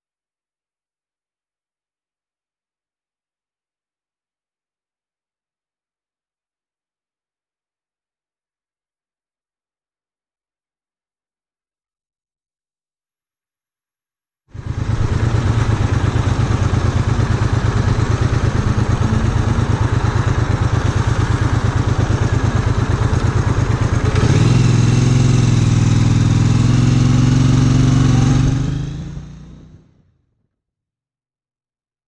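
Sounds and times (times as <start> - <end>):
motorcycle engine idling and revving: 14.6 - 30.0.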